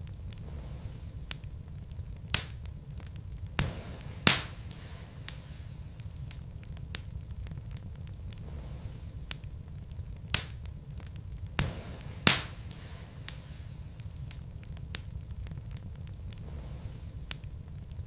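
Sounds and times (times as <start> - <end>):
fire crackling: 0.0 - 18.0
fire rumbling: 0.0 - 18.0
sharp pops of burning wood: 0.0 - 18.0.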